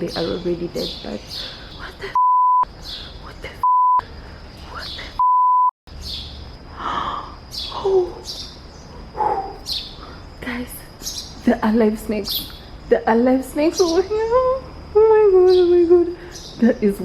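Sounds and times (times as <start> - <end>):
censor bleeps: 2.2 - 2.7, 3.6 - 4.0, 5.2 - 5.8
low breathy talk: 6.9 - 8.2.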